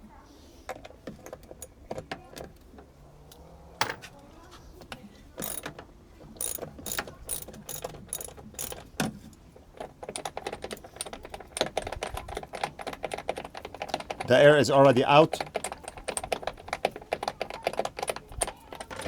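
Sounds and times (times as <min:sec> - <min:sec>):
ratchet wrench clicking: 0:05.4 - 0:05.7, 0:06.4 - 0:08.8.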